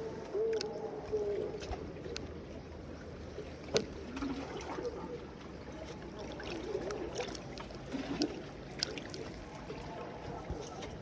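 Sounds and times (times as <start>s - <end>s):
water lapping against a breakwater: 0.0s - 11.0s.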